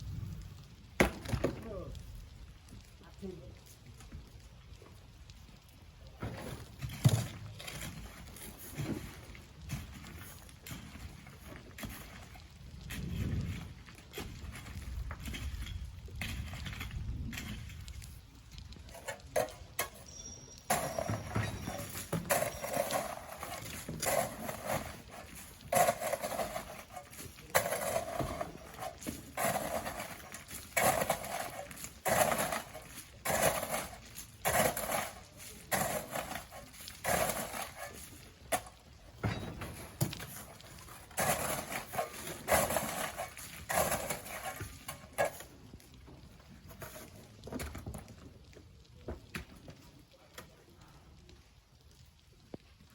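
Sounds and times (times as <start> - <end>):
shovels scraping sand: 18.9 - 38.8, 39.6 - 45.5.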